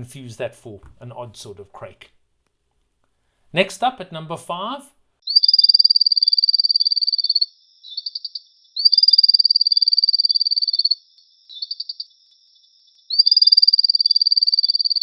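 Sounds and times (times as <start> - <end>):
frog trilling: 5.2 - 15.0
frog clicks: 5.3 - 12.1, 13.1 - 15.0.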